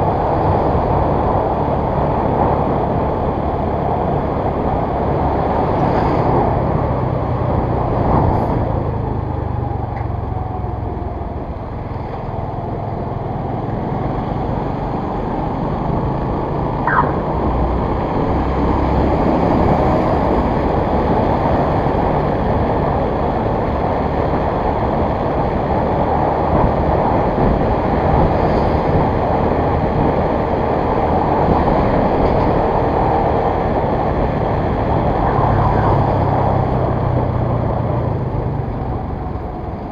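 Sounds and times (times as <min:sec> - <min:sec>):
vehicle road and wind noise: 0:00.0 - 0:39.9.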